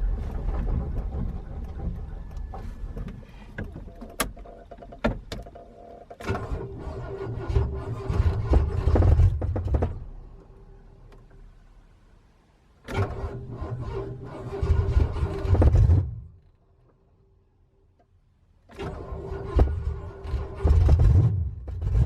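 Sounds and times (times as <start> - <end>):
clicks and rattles: 0.0 - 6.4
truck engine and road rumble: 0.0 - 22.0.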